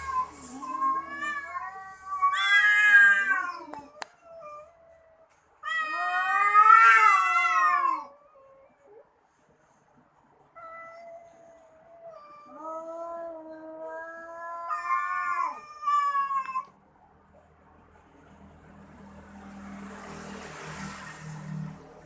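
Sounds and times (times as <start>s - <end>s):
cats yowling: 0.0s - 9.0s, 10.5s - 16.8s.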